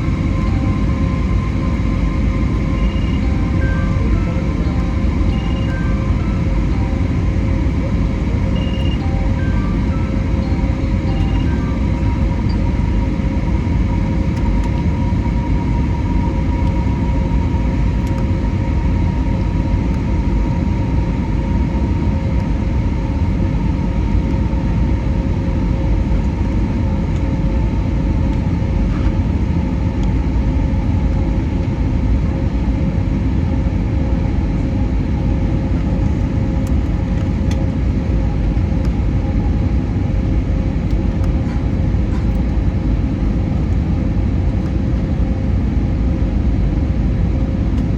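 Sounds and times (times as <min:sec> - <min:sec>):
faint steady tones: 0:00.0 - 0:19.4
airliner cabin rumble: 0:00.0 - 0:47.9.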